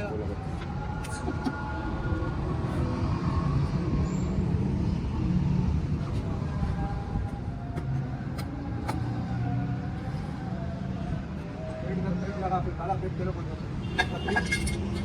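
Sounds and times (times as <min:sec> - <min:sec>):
vehicle engine rumbling: 0:00.0 - 0:12.0, 0:12.6 - 0:15.0.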